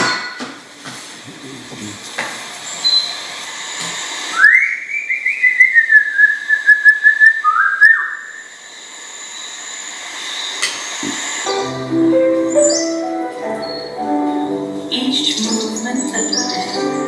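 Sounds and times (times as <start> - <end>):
bird whistled warbling call: 2.8 - 3.2, 4.3 - 8.6, 12.5 - 17.0.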